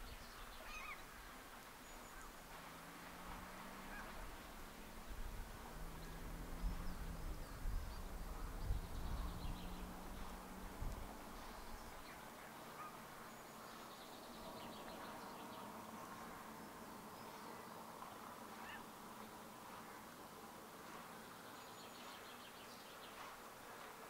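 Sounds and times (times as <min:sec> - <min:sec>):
faint bird calls: 0:00.0 - 0:02.4, 0:03.6 - 0:04.3, 0:11.2 - 0:19.0.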